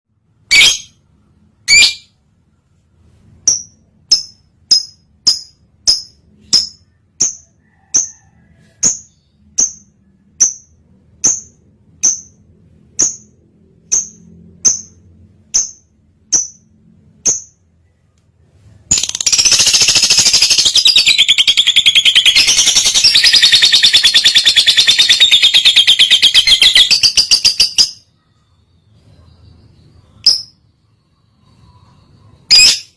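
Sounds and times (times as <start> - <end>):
bird sharp high chirps: 0.5 - 1.0, 1.6 - 2.2, 18.9 - 28.1
bird fast chattering song: 18.9 - 28.0.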